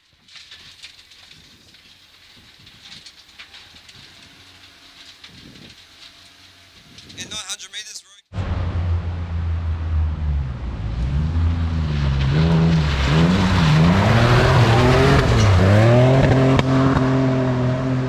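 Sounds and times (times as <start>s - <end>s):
tyre and road noise: 0.0s - 7.2s, 8.3s - 18.0s
rally car engine revving: 8.4s - 18.0s.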